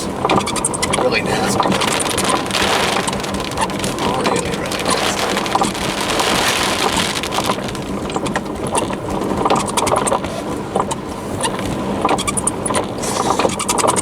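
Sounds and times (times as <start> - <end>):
rain hissing on a car: 0.0 - 14.0
sharp irregular clicks: 1.4 - 8.4.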